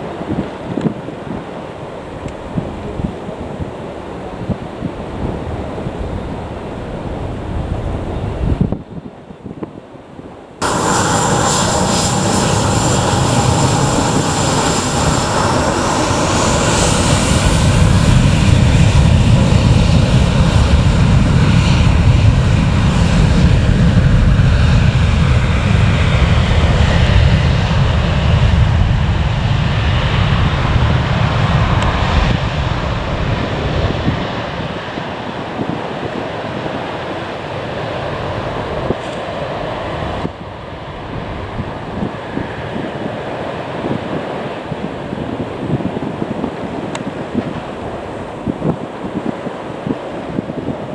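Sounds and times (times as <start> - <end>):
airliner engines deep rumble: 10.4 - 50.9
airliner engines high whine: 10.5 - 50.9.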